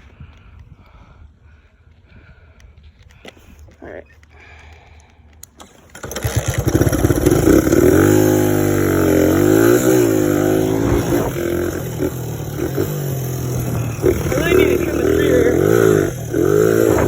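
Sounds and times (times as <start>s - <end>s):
dirt bike engine revving: 5.9s - 17.0s.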